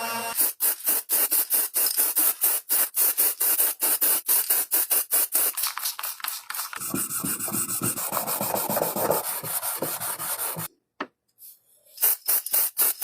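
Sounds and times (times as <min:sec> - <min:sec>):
abrasive rubbing by hand: 0:06.8 - 0:10.7.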